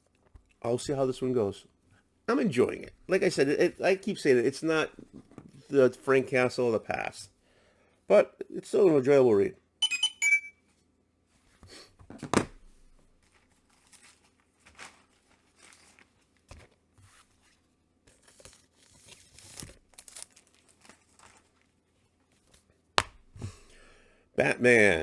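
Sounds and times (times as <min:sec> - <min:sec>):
comic books rustling: 0:12.1 - 0:22.7.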